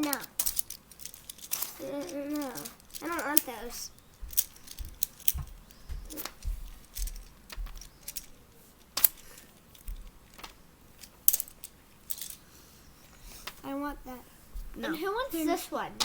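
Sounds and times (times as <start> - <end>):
fidget toys clicking: 0.0 - 12.4.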